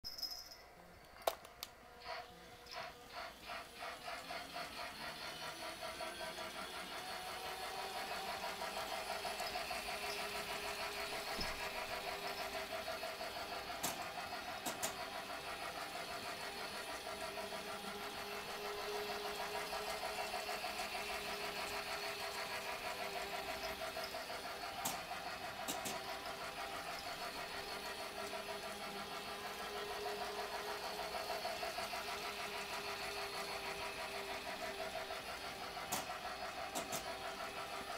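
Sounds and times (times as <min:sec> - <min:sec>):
toy train motor whir and rattle: 0:00.1 - 0:37.9.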